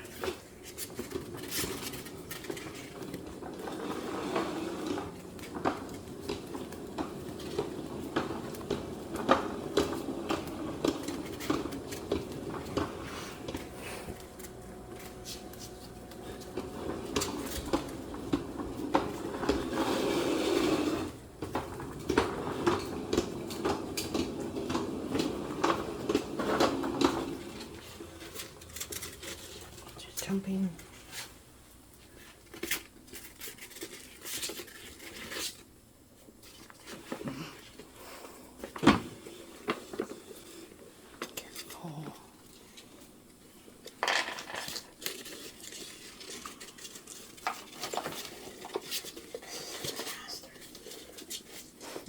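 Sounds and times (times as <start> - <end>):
small hard objects clattering: 44.0 - 49.1.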